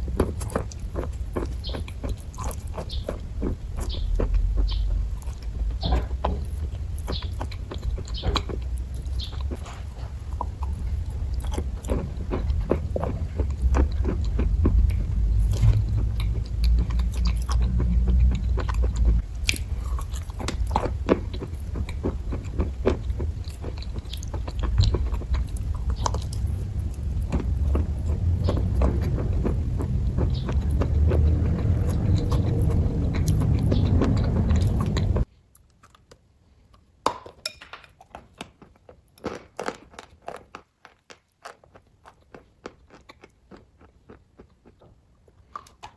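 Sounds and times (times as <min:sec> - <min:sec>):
low rumble: 0:00.0 - 0:35.3
close-miked chewing: 0:00.0 - 0:37.0, 0:37.9 - 0:45.9.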